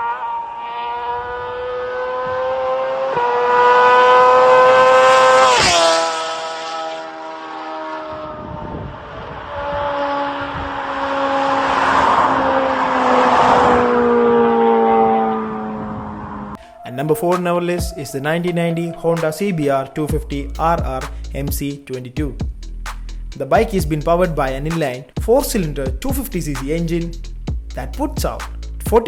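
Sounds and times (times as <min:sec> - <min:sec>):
motorcycle engine at high revs: 0:00.0 - 0:16.5.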